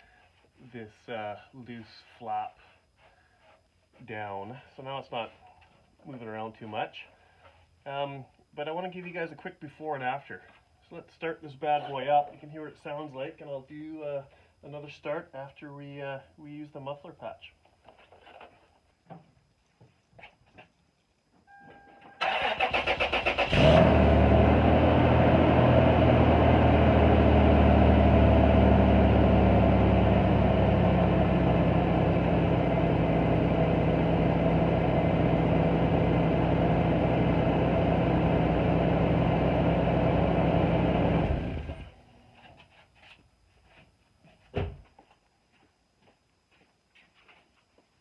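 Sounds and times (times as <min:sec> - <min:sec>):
starter cranking engine: 0:22.2 - 0:24.0
car engine running: 0:23.5 - 0:41.8.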